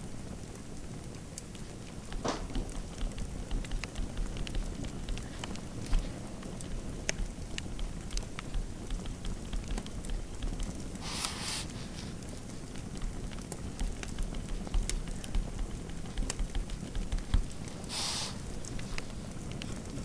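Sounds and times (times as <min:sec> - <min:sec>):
fire crackling: 0:00.0 - 0:20.0
fire popping and snapping: 0:00.0 - 0:20.0
scratchy rustle: 0:11.0 - 0:19.4.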